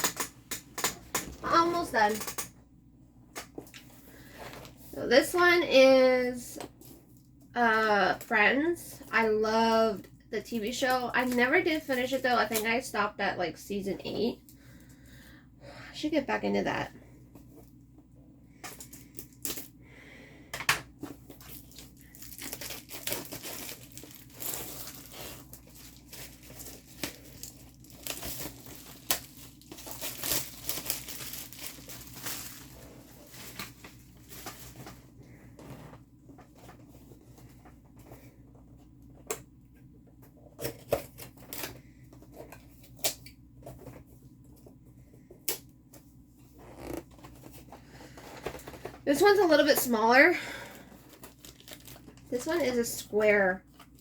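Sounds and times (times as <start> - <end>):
plastic packaging rustling: 21.0 - 38.3, 46.5 - 54.0.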